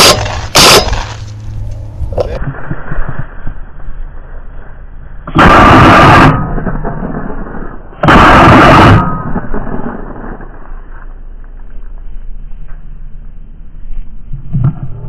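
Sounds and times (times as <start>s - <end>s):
very loud blasts: 0.0s - 3.0s, 5.2s - 11.0s.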